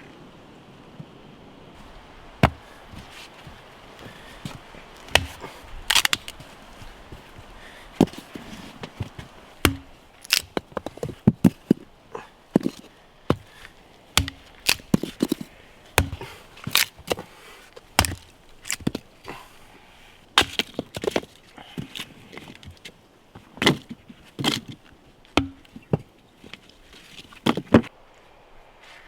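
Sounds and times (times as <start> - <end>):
sharp wooden knocks: 2.4 - 2.7, 5.1 - 6.2, 9.6 - 10.6, 14.2 - 15.4, 16.0 - 16.8, 25.4 - 25.8.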